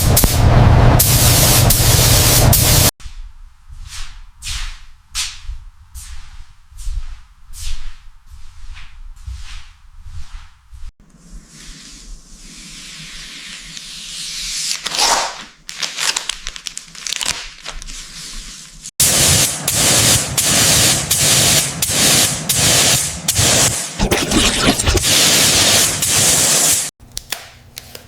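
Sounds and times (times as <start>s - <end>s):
compressed air spraying hiss: 19.0s - 23.7s, 25.0s - 26.8s.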